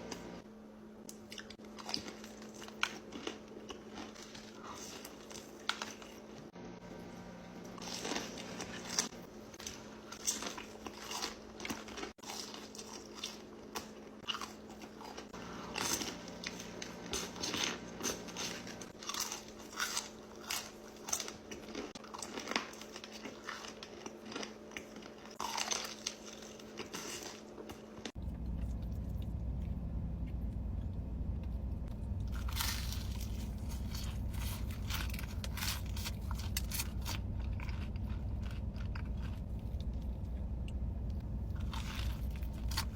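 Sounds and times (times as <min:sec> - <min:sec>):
steady low hum: 0:00.0 - 0:10.8, 0:27.8 - 0:42.9
crunchy bites and chewing: 0:07.8 - 0:29.8, 0:31.9 - 0:42.9.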